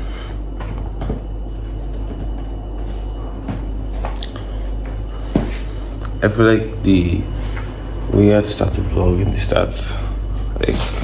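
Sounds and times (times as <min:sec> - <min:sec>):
steady low hum: 0:00.0 - 0:11.0
knocks and rustles of putting on shoes: 0:00.5 - 0:05.8.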